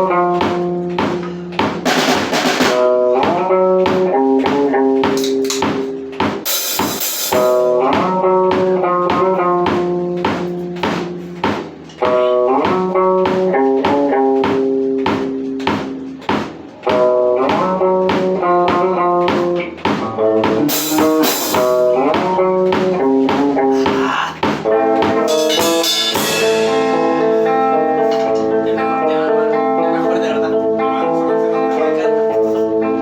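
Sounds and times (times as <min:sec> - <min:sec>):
drum kit beat: 0:00.0 - 0:33.0
guitars and bass riff: 0:00.0 - 0:33.0
cymbal crashes: 0:06.5 - 0:07.8, 0:25.3 - 0:28.4.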